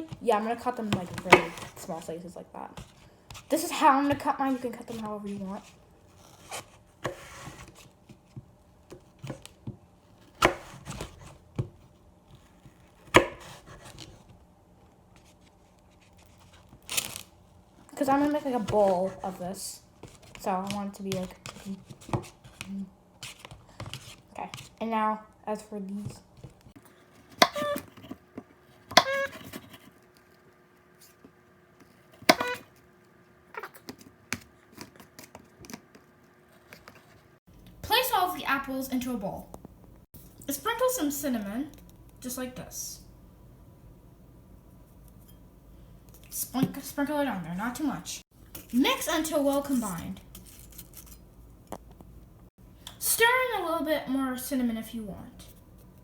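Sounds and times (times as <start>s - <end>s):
knife chopping on a board: 0.9s - 1.8s, 10.3s - 11.7s, 13.0s - 14.0s, 27.3s - 28.0s, 28.9s - 29.8s, 32.2s - 32.6s
knife striking a plate: 32.3s - 32.6s.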